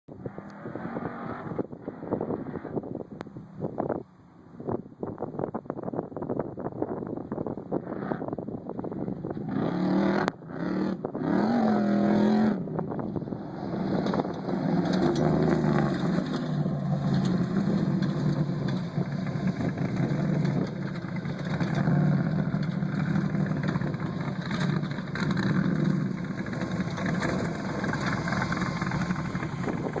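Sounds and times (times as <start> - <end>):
truck engine revving: 9.5 - 30.0.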